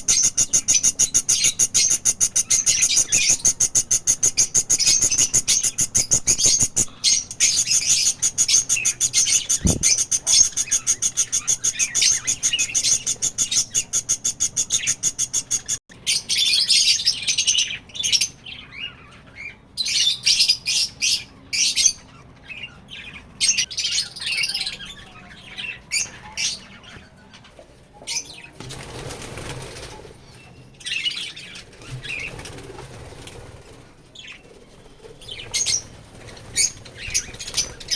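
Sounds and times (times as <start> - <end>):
budgerigars chirping: 0.0 - 27.1, 35.2 - 37.9
wings fluttering: 8.4 - 13.6, 28.4 - 30.3, 31.6 - 37.9.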